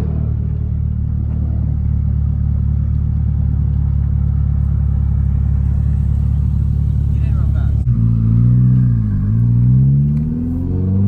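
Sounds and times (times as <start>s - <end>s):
car engine idling loudly: 0.5s - 10.6s.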